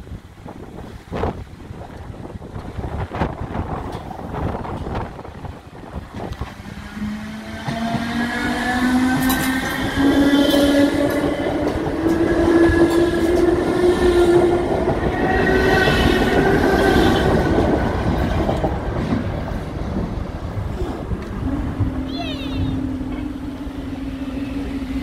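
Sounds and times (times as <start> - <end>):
electric train whine: 0.2 - 25.0
train wheels clacking over rail joints: 2.6 - 21.9.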